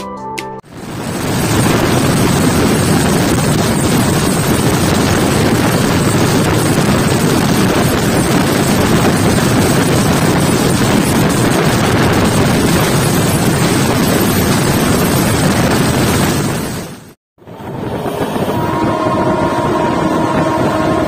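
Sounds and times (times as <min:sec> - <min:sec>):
train wheels on rails: 0:00.7 - 0:21.0
wind rushing: 0:00.7 - 0:21.0.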